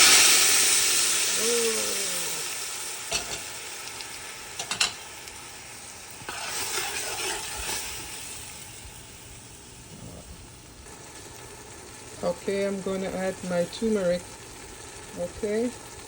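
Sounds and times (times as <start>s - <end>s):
food sizzling in oil: 0.0s - 16.0s
stirring in pot: 6.2s - 8.1s.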